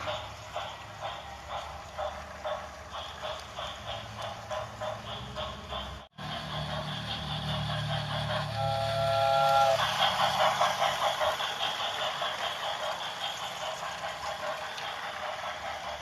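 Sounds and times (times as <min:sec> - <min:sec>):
steam engine exhaust chuffing: 0:00.0 - 0:16.0
steam locomotive whistle: 0:08.2 - 0:10.1.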